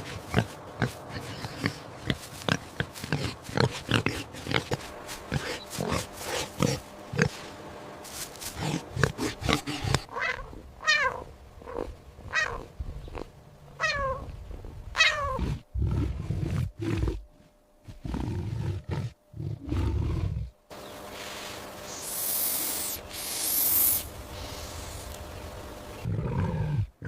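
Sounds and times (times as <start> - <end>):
animal grunts: 0.0 - 7.4, 8.5 - 10.6, 15.2 - 20.6
big cat growling and roaring: 17.9 - 20.6, 26.0 - 27.0.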